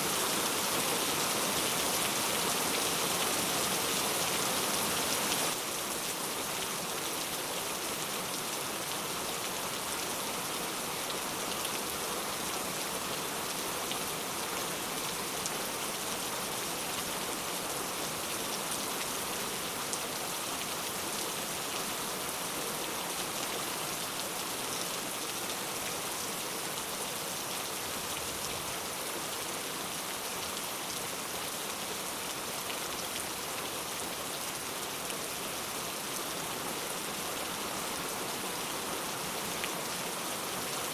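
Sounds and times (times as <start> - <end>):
heavy rain falling: 0.0 - 7.3.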